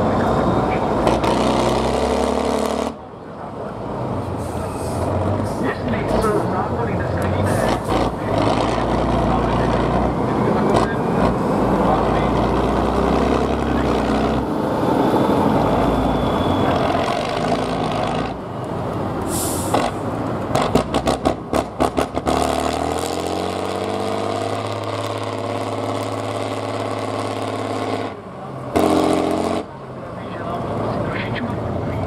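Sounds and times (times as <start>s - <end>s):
diesel truck engine rumbling: 0.0s - 32.0s
short hiss: 19.3s - 19.8s.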